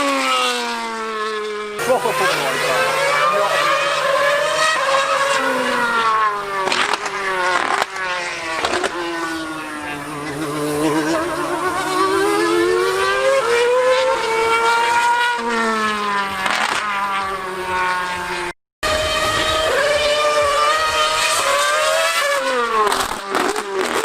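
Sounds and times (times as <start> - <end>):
lower engine note: 0.0 - 24.0
racing engine passing by: 0.0 - 24.0.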